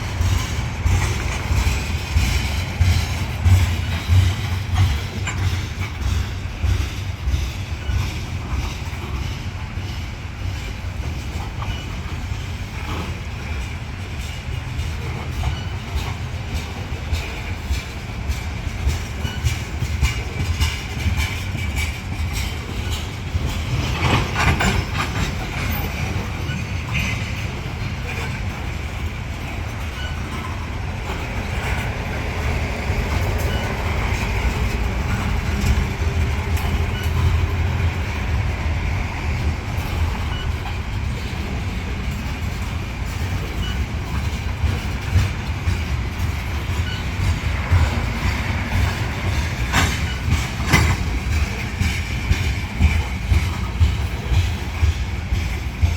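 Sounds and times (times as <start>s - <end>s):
freight train rumbling past: 0.0s - 55.9s
wheels clicking over rail: 39.4s - 55.9s.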